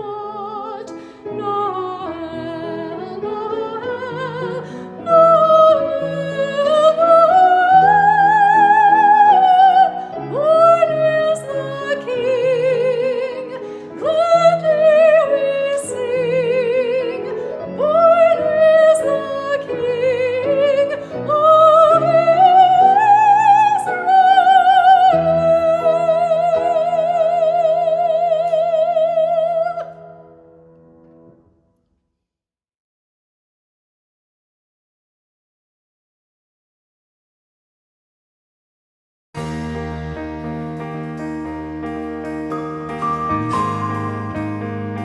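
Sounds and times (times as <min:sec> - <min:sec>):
soprano singing with vibrato: 0:00.0 - 0:30.3
instrumental accompaniment: 0:39.4 - 0:45.0.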